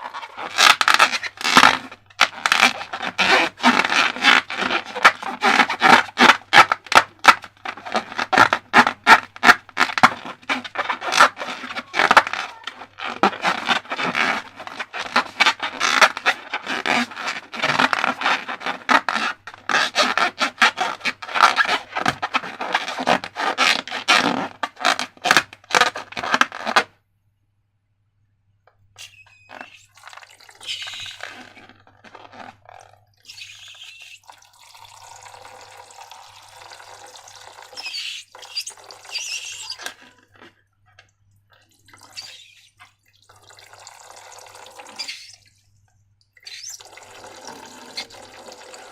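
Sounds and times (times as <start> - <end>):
hands scraping and rubbing slime: 0.0 - 26.9, 37.8 - 40.6, 42.0 - 43.0.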